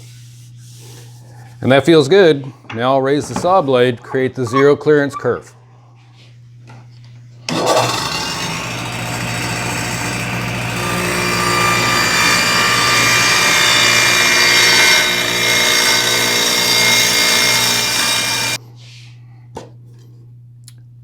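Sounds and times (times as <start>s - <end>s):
table saw cutting: 7.5s - 18.6s.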